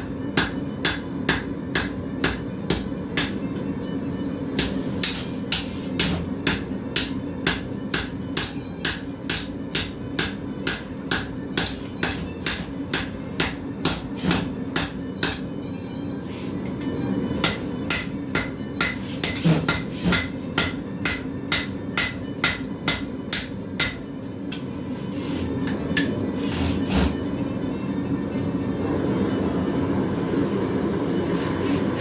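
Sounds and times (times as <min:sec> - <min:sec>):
hammer striking steel on anvil: 0:00.0 - 0:03.6, 0:04.6 - 0:15.5, 0:17.4 - 0:24.6
steady low hum: 0:00.0 - 0:32.0.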